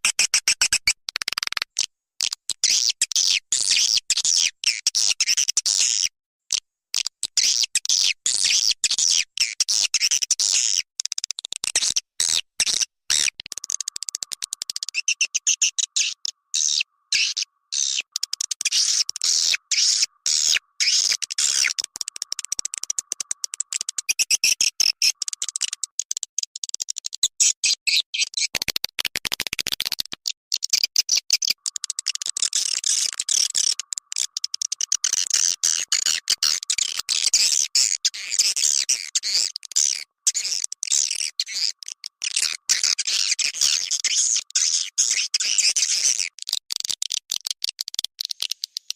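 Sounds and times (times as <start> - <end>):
swiftlets chirping and twittering: 13.7 - 25.8.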